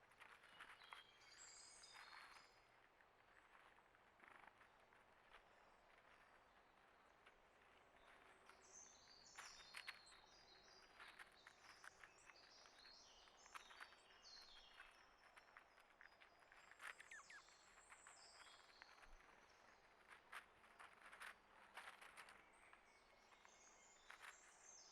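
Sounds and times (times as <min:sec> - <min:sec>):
faint birdsong chirps: 0:00.0 - 0:24.9.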